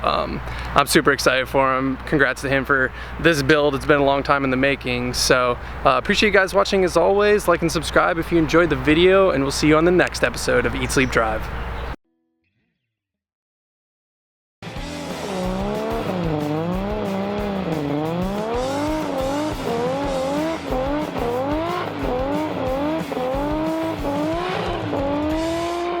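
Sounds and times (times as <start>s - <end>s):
car engine revving: 14.8s - 26.0s.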